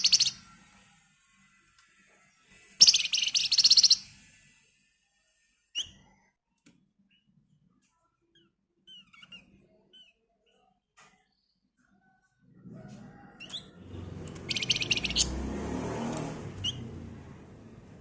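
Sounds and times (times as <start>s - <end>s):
songbird rattling trill: 0.0s - 0.4s, 2.8s - 4.0s, 14.4s - 15.4s
faint bird chirps: 0.0s - 0.6s, 2.5s - 4.4s, 5.1s - 12.4s, 14.5s - 15.3s.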